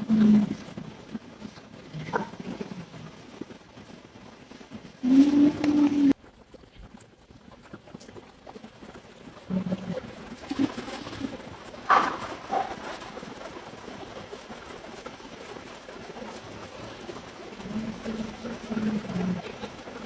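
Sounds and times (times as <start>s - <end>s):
dove cooing: 0.0s - 3.3s, 5.0s - 6.2s, 16.2s - 20.0s.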